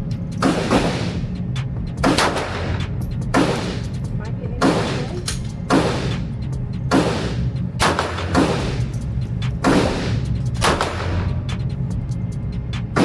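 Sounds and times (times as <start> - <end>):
fainter sharper gunshots: 0.4 - 1.2, 2.0 - 2.8, 4.6 - 6.2, 6.9 - 8.9, 9.6 - 11.2
pistol shots with echo: 0.4 - 1.2, 2.0 - 4.0, 4.6 - 6.2, 6.9 - 8.9, 9.6 - 11.3.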